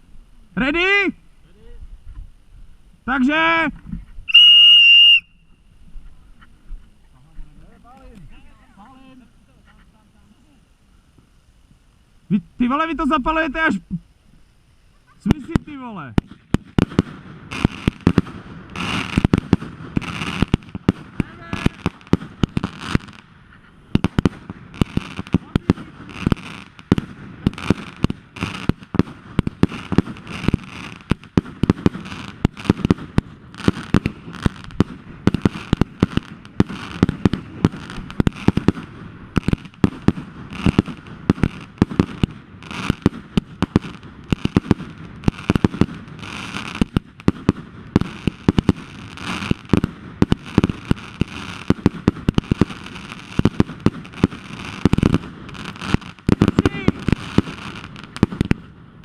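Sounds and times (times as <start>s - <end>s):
fireworks bangs and crackles: 0.0s - 5.2s, 11.2s - 59.0s.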